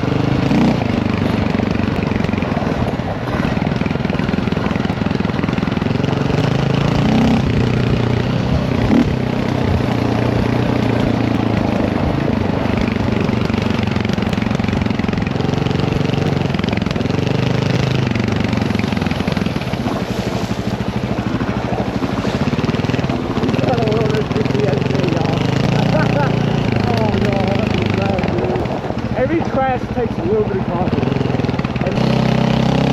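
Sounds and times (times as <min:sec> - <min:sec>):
dirt bike engine revving: 0:00.0 - 0:32.9.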